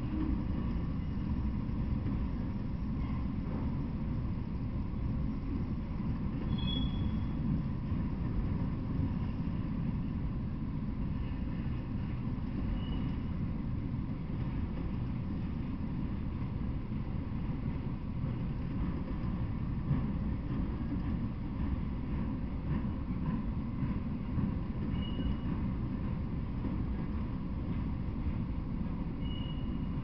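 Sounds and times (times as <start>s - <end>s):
train wheels rumbling on rail: 0.0s - 30.0s
faint high squeaks: 6.4s - 7.4s, 12.7s - 13.3s, 24.9s - 25.5s, 29.2s - 29.9s.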